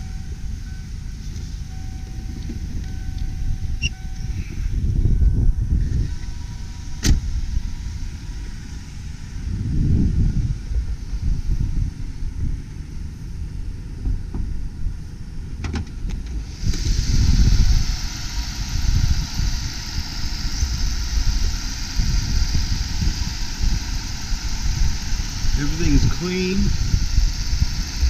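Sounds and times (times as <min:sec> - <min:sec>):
car engine idling: 0:00.0 - 0:28.0
steady high hiss: 0:16.5 - 0:28.0.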